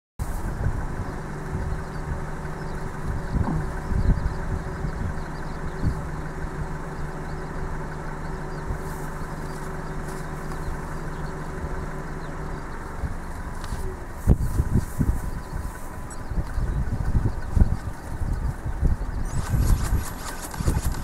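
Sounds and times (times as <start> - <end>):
wind rushing over microphone: 0.2 - 6.3, 13.0 - 21.0
steady low hum: 0.2 - 21.0
loud wind thumps: 2.9 - 5.2, 18.4 - 21.0.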